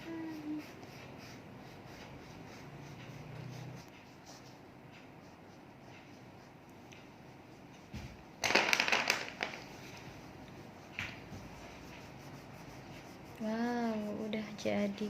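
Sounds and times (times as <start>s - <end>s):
paper rustling: 8.4s - 10.0s.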